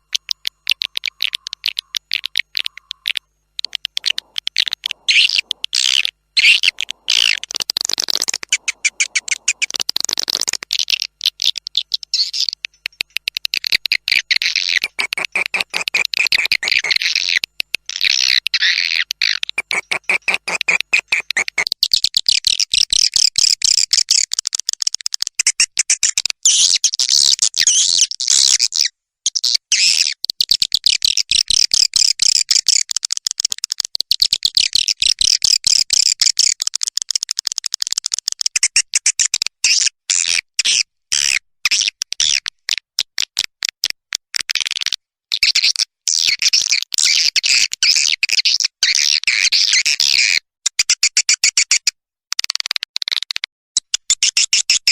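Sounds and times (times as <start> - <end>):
swiftlets twittering: 0.1 - 12.9.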